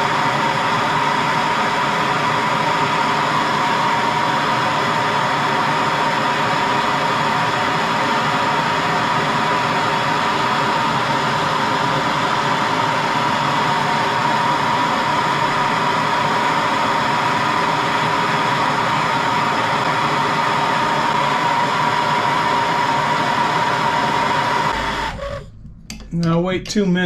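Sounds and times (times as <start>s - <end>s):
torch flame hissing: 0.0s - 25.3s.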